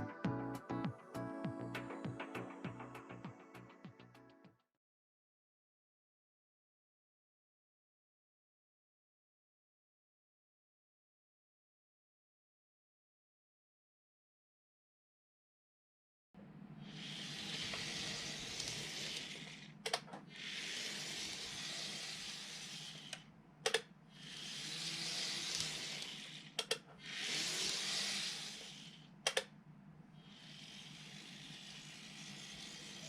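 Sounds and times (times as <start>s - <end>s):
model train running on track: 16.9s - 19.7s, 20.3s - 23.2s, 24.2s - 29.0s, 30.3s - 33.0s
sharp clicks: 23.1s - 23.9s, 26.6s - 26.9s, 29.2s - 29.6s.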